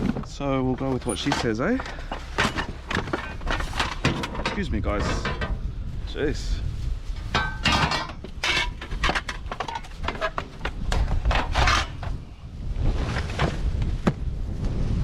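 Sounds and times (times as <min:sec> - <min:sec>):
rubbish clattering and scraping: 0:00.0 - 0:14.1.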